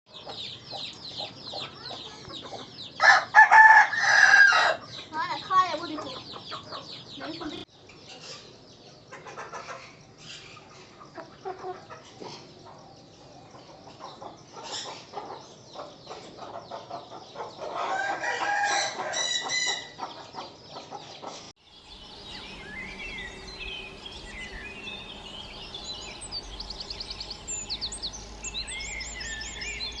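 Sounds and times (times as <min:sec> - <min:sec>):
small birds chirping: 0:00.1 - 0:03.4, 0:04.0 - 0:30.0
chickens clucking: 0:00.1 - 0:30.0
rooster crowing: 0:03.0 - 0:04.9, 0:17.8 - 0:19.9
fast bird trill: 0:21.6 - 0:30.0.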